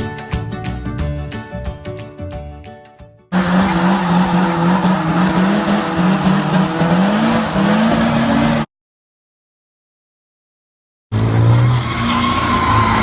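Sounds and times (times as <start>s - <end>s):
car engine revving: 3.4s - 8.7s.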